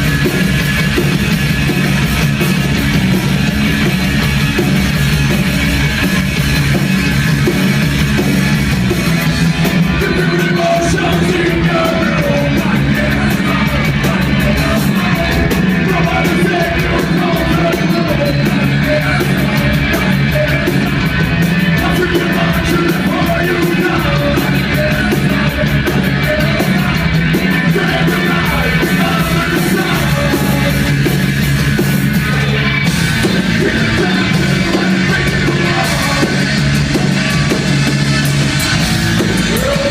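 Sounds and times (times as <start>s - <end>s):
heavy punk metal band: 0.0s - 39.9s
person yelling singing: 9.8s - 21.1s, 21.8s - 31.1s, 32.2s - 37.6s, 39.2s - 39.9s.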